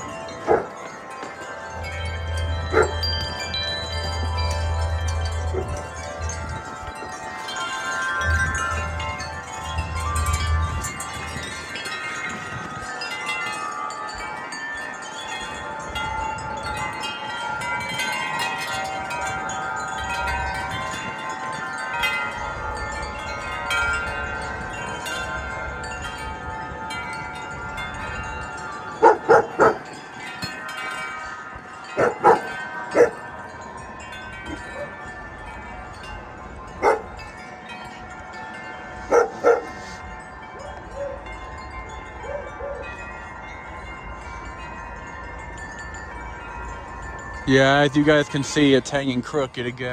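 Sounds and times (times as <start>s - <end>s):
gusty wind: 0.0s - 49.8s
wind chimes ringing: 0.0s - 49.9s
dog barking: 0.4s - 0.8s, 2.7s - 3.0s, 29.0s - 29.9s, 32.0s - 33.2s, 36.8s - 37.1s, 39.1s - 39.8s.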